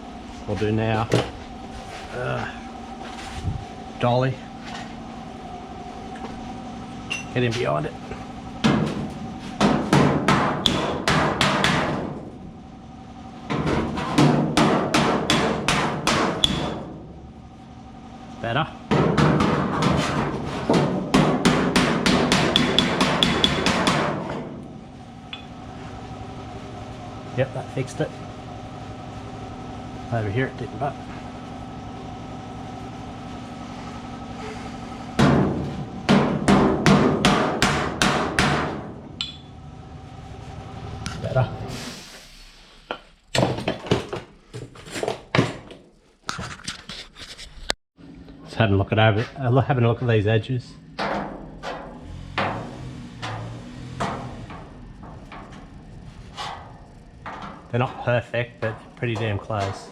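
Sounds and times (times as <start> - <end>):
hammer striking metal panel: 9.6 - 12.2, 13.5 - 16.9, 18.9 - 24.6, 35.2 - 39.5, 51.0 - 55.6
hammer ringing on steel panel: 21.2 - 24.1, 36.1 - 39.6.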